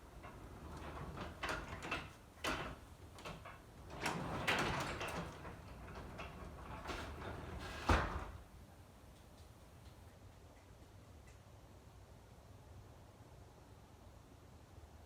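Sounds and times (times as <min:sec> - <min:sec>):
garage door rollers rattling: 0:00.0 - 0:08.4
garage door thud: 0:00.2 - 0:08.5.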